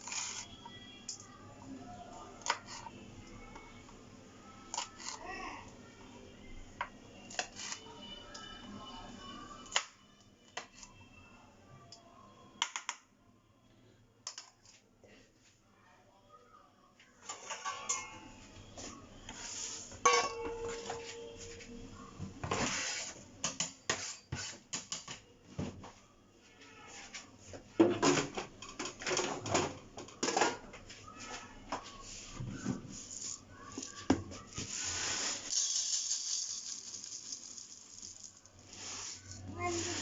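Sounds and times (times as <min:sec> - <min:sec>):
dishes and utensils clattering: 0:17.2 - 0:18.4, 0:20.0 - 0:21.3, 0:27.8 - 0:30.8
metal vessel ringing: 0:17.6 - 0:18.2.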